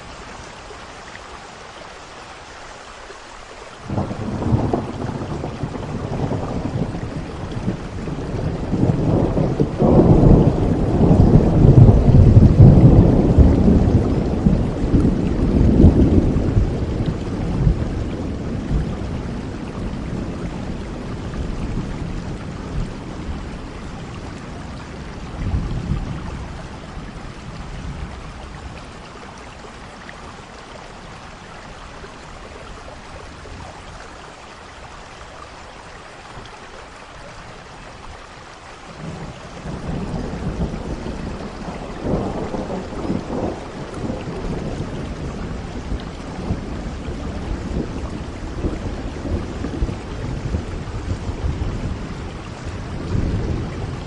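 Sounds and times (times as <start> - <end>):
steady rain: 0.0 - 54.0
thunder rumbling: 3.9 - 29.1, 38.9 - 54.0.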